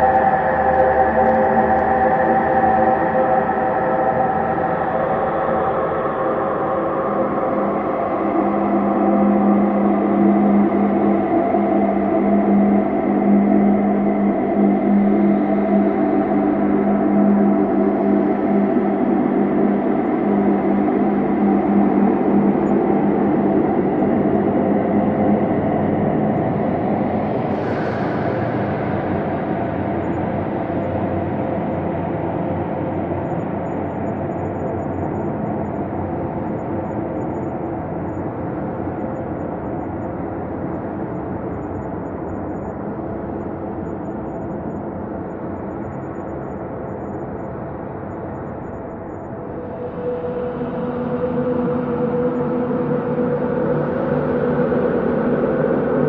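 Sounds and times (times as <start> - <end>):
low rumbling synth drone: 0.0 - 56.0.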